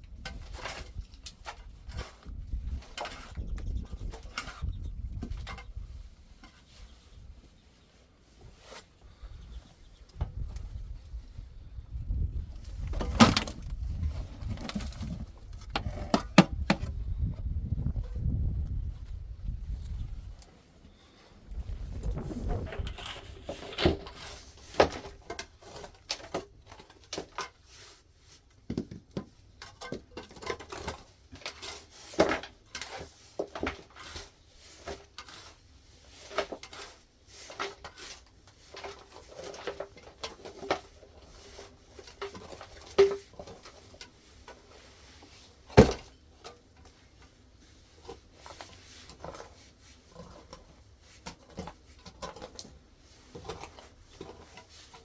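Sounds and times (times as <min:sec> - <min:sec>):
objects being handled: 0:12.5 - 0:17.0, 0:19.1 - 0:55.0.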